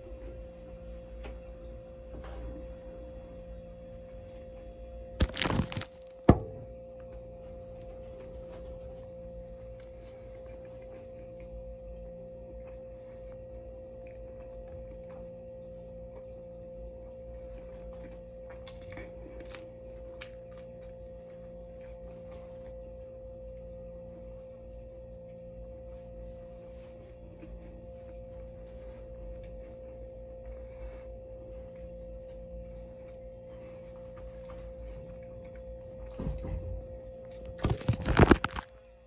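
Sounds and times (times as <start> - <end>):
steady high hum: 0.0 - 39.0
short loud crackle: 5.2 - 6.0.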